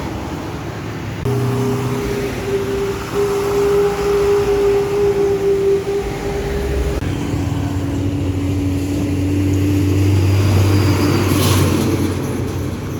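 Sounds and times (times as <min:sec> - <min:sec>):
truck diesel engine droning: 0:00.0 - 0:12.9
low rumble: 0:01.2 - 0:09.6.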